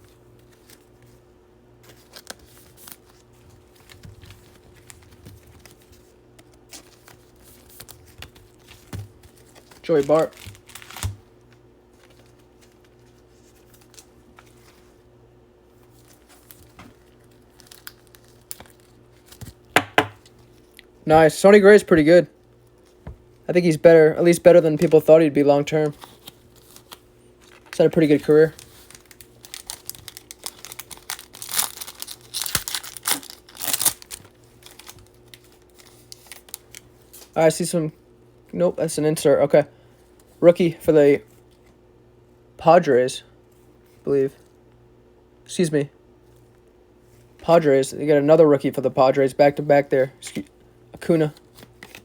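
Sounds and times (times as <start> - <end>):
wrapper crinkling and tearing: 1.9 - 11.2, 15.9 - 19.7, 25.8 - 37.3, 51.2 - 52.0.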